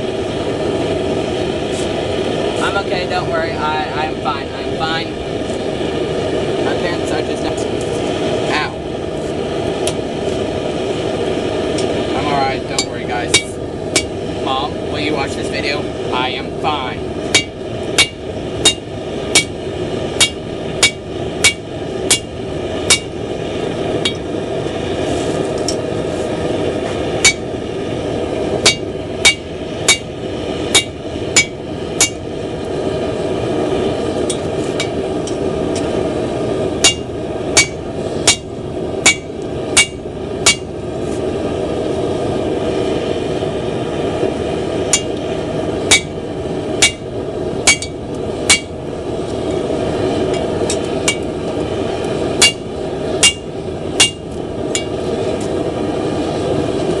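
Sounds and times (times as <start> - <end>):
steady rushing noise: 0.0 - 57.0
hammer striking metal on anvil: 12.8 - 14.2, 17.3 - 19.6, 20.2 - 22.3, 22.9 - 23.1, 27.2 - 27.4, 28.6 - 30.1, 30.7 - 32.2, 36.8 - 38.5, 39.1 - 40.7, 44.9 - 45.1, 45.9 - 46.1, 46.8 - 47.0, 47.7 - 48.7, 52.4 - 52.6, 53.2 - 54.2.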